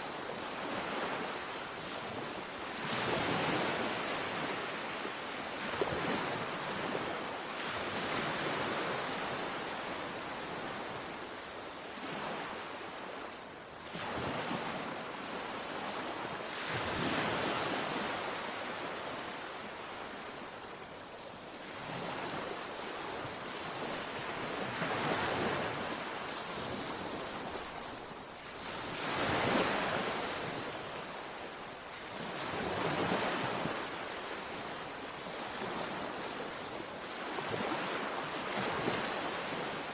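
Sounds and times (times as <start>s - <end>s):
sea waves breaking on shore: 0.0s - 39.9s
wind on microphone: 13.9s - 39.9s.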